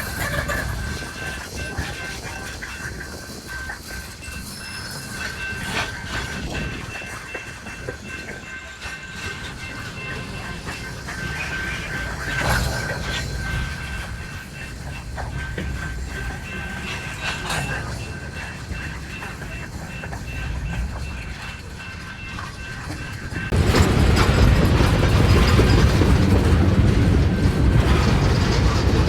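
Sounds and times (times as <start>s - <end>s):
freight train cars rolling: 0.0s - 29.0s
train cars clanking: 0.0s - 29.0s.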